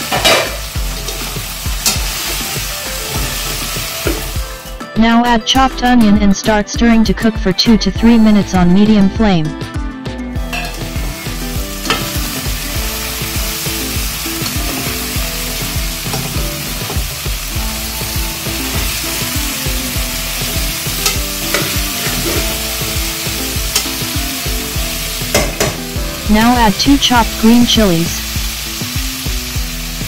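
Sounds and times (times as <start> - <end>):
vegetables sizzling in hot oil: 0.0 - 4.8, 10.4 - 26.3, 28.2 - 30.0.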